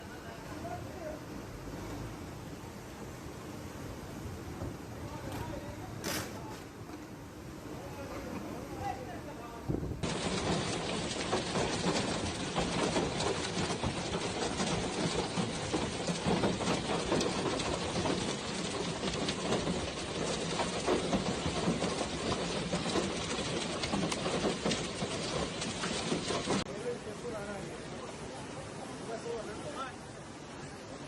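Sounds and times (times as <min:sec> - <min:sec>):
heavy rain pouring: 0:10.0 - 0:30.1.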